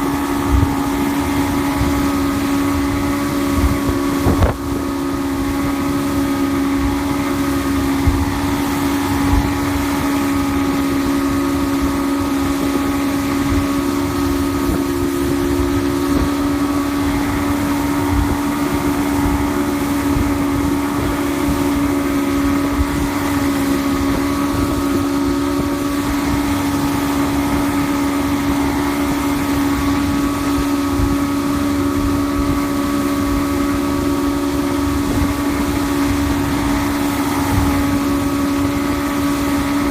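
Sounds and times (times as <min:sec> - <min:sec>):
outboard motor running: 0:00.0 - 0:39.9
wind buffeting microphone: 0:00.0 - 0:39.9.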